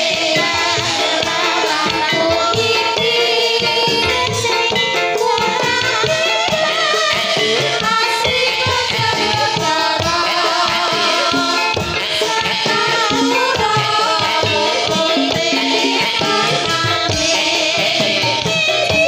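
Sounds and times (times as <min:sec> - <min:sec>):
hand drums: 0:00.0 - 0:19.0.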